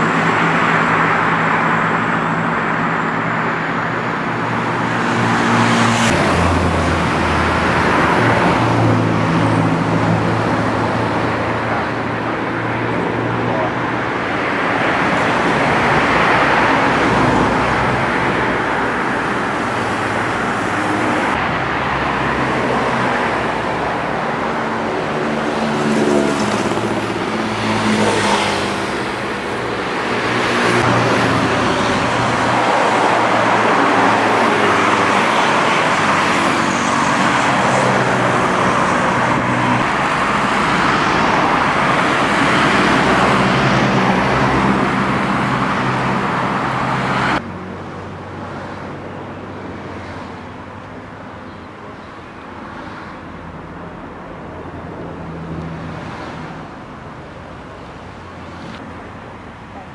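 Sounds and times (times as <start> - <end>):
road traffic noise: 0.0 - 59.9.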